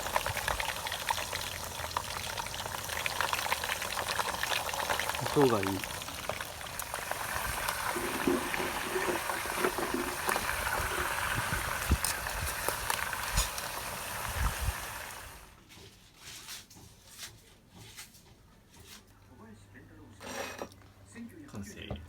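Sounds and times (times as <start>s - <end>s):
chicken sizzling in hot oil: 0.0s - 15.5s.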